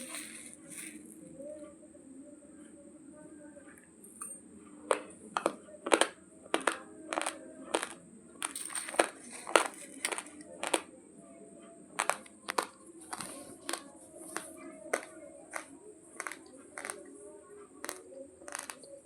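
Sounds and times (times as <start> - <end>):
raw rice being chewed: 0.0 - 1.1, 4.9 - 10.9, 12.0 - 17.1, 17.8 - 18.8.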